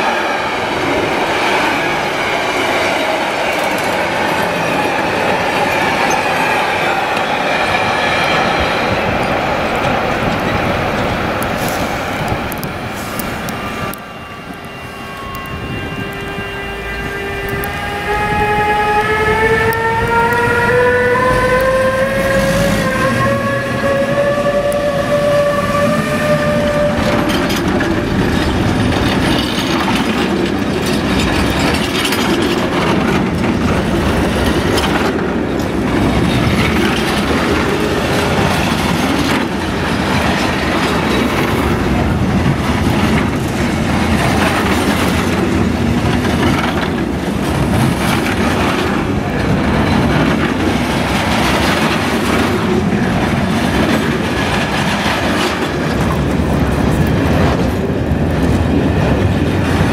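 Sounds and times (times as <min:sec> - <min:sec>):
wagons rumbling past: 0:18.0 - 0:59.9
wheels clicking over rail joints: 0:26.2 - 0:59.9.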